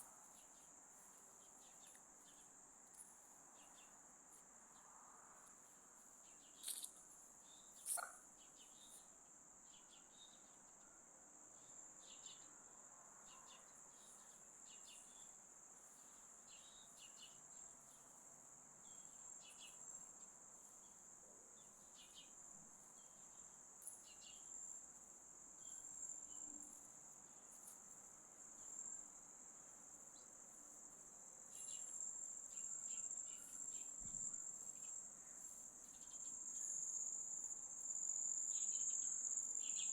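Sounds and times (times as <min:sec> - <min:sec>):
insects trilling: 0:06.3 - 0:09.1, 0:21.6 - 0:39.9
faint short chirps: 0:07.8 - 0:08.2.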